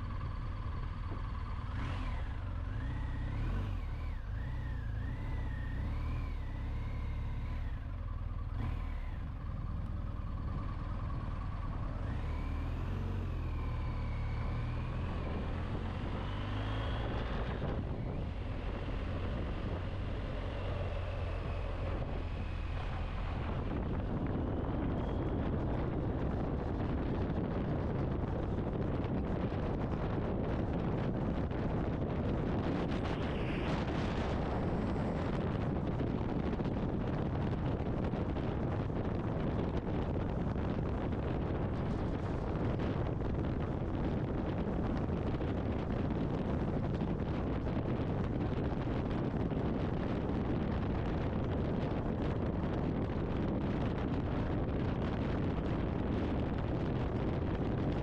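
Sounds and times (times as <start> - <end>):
motorcycle engine and road rumble: 0.0 - 58.0
wind rush: 14.0 - 58.0.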